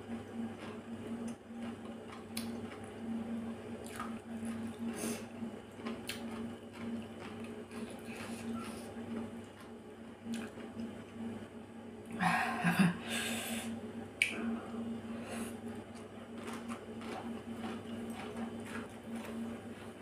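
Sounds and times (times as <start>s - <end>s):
person slurping and chewing: 16.0s - 19.5s.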